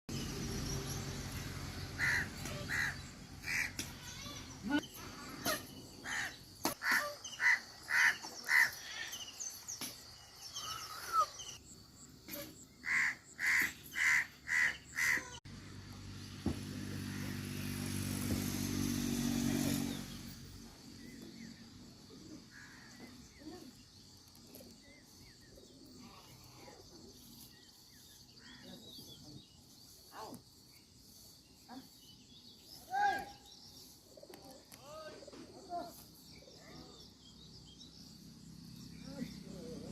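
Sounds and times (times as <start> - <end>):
loud repeated bird calls: 0.2 - 15.4, 24.6 - 38.0.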